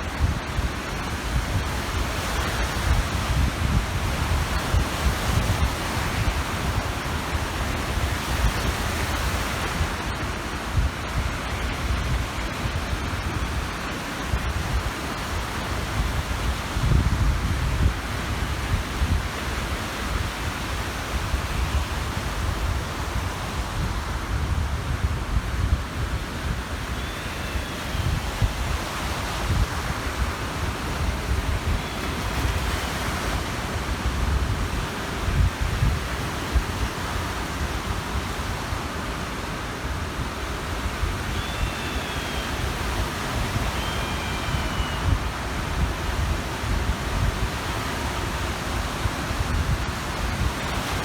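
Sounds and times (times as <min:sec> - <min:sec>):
small waves washing on shore: 0:00.0 - 0:51.0
wind gusting across microphone: 0:00.0 - 0:51.0
faint high whistling calls: 0:26.2 - 0:33.6, 0:40.8 - 0:46.3.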